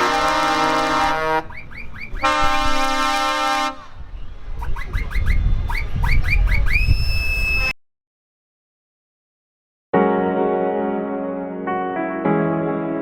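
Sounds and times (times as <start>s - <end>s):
truck horn blasts: 0.0s - 4.0s
rising whistle-like chirps: 1.5s - 2.2s, 4.2s - 7.8s
rising whistle: 1.5s - 2.5s, 4.1s - 7.8s.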